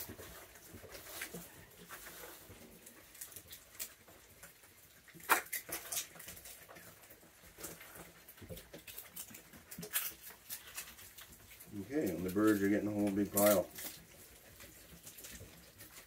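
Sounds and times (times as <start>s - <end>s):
raccoons crunching food: 0.0s - 16.0s.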